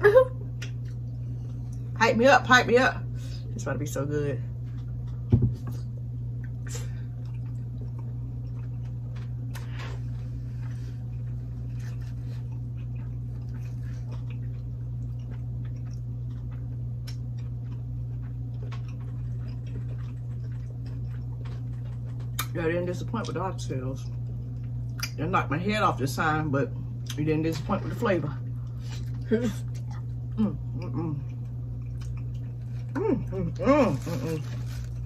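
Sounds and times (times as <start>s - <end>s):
low hum: 0.0s - 35.0s
chewing and mouth smacking: 4.6s - 22.6s, 24.0s - 25.2s, 28.5s - 35.0s.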